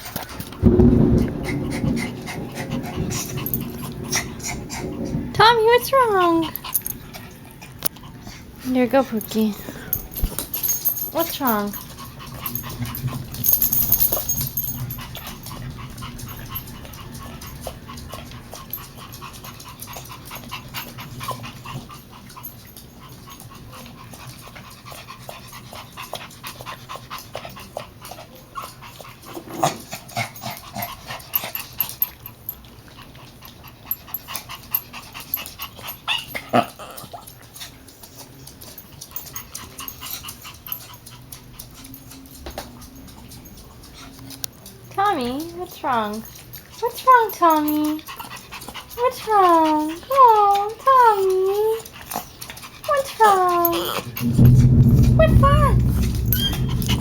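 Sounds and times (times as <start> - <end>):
dog breathing hard: 0.0 - 57.0
dog whimpering: 49.0 - 51.9, 52.9 - 54.3
loud sudden sounds: 54.2 - 57.0.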